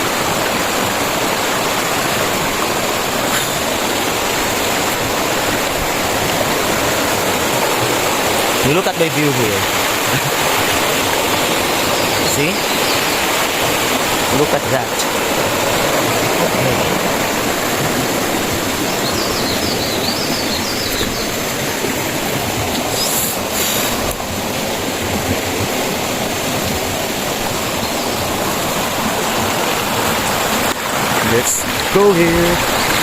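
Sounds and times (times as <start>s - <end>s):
rushing river water: 0.0s - 33.0s
high chirping: 18.9s - 21.4s.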